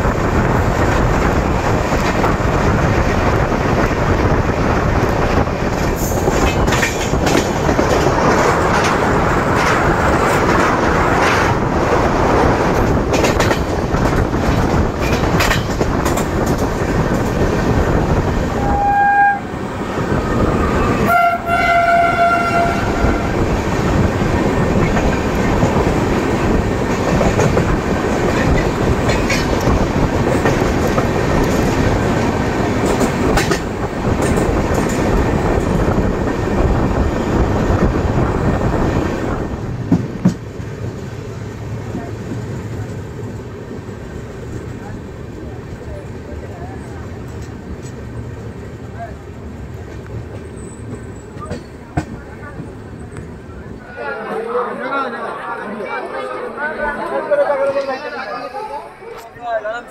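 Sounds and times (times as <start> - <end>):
train rumbling on rails: 0.0 - 59.9
train horn: 18.5 - 19.5, 20.9 - 23.4.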